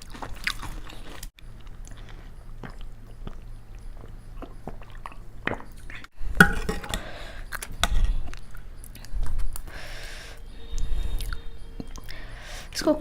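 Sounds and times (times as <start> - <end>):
person chewing: 0.0 - 6.1, 10.7 - 12.2.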